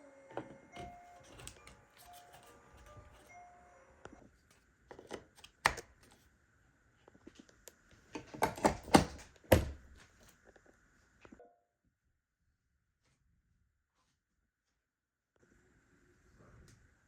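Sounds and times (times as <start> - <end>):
handling knocks and clicks: 0.8 - 3.3, 4.9 - 6.2, 7.4 - 10.3.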